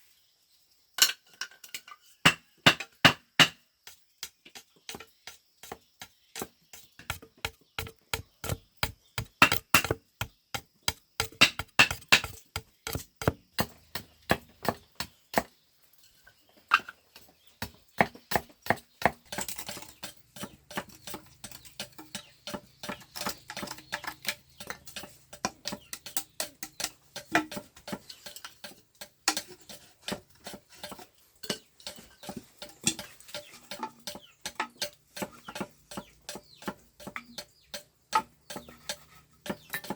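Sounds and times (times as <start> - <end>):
tool knocking on wood: 6.4 - 15.5.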